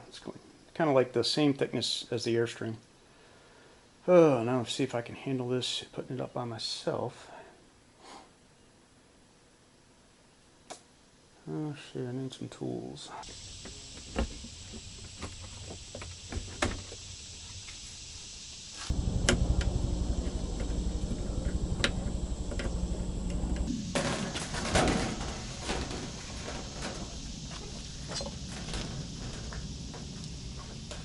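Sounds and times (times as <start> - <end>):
low machine hum: 13.3 - 31.0.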